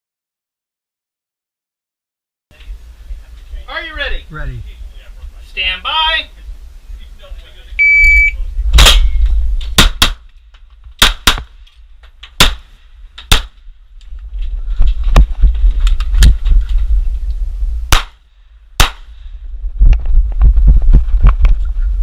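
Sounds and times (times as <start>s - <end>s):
low rumble: 6.3s - 9.8s, 12.8s - 22.0s
pistol shots: 9.8s - 10.3s, 11.0s - 11.6s, 12.4s - 13.6s, 17.9s - 18.2s, 18.8s - 19.1s.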